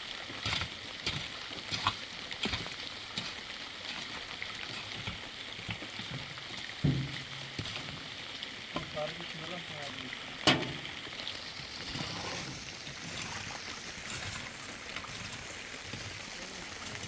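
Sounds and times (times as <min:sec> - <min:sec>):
heavy rain hissing: 0:09.0 - 0:17.0.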